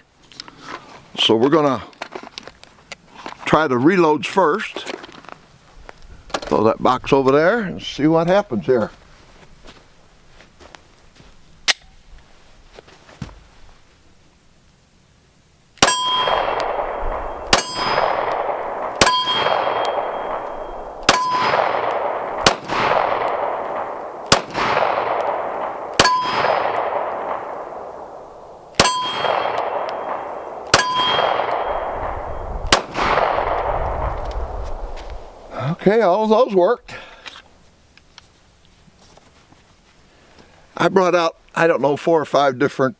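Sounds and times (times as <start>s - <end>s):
bullet hitting steel target: 15.8s - 23.6s, 24.3s - 27.5s, 28.8s - 32.0s
pistol shots: 15.8s - 34.2s.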